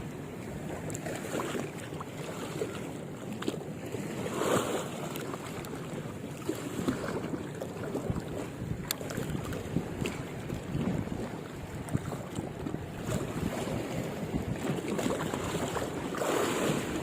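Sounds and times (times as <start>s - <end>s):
water lapping and sloshing: 0.0s - 17.0s
wind buffeting microphone: 6.7s - 17.0s.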